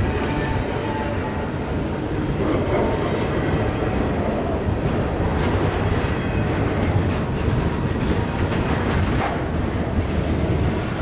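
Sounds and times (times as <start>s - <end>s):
freight train wheels rumbling: 0.0s - 11.0s
wheels clicking over rail joints: 4.8s - 11.0s.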